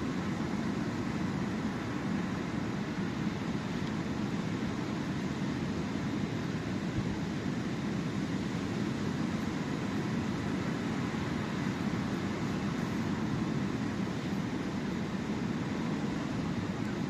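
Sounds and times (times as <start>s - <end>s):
sea waves on the shore: 0.0s - 17.0s.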